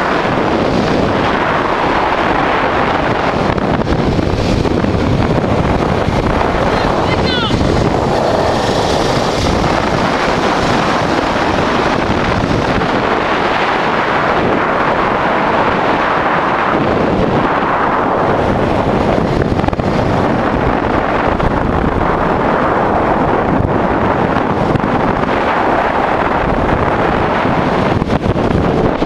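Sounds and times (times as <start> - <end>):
wind rushing over microphone: 0.0 - 29.0
motorcycle engine running: 0.4 - 15.6.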